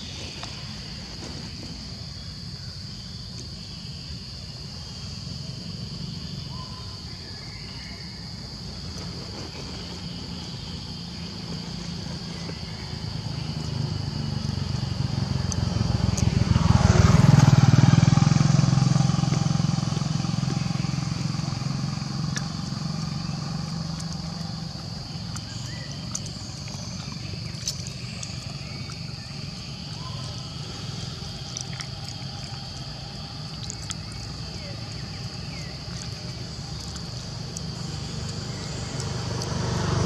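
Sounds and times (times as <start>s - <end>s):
vehicle driving past: 11.0s - 40.0s.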